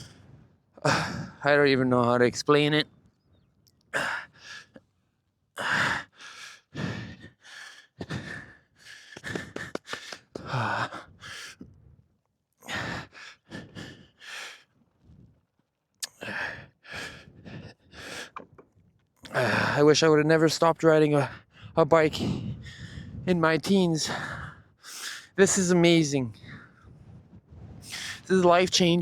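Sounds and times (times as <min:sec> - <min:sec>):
man breathing hard: 0:00.0 - 0:01.4, 0:04.0 - 0:04.8, 0:05.6 - 0:12.0, 0:12.6 - 0:15.4, 0:16.0 - 0:18.5, 0:21.2 - 0:23.3, 0:24.0 - 0:25.6, 0:26.2 - 0:28.3.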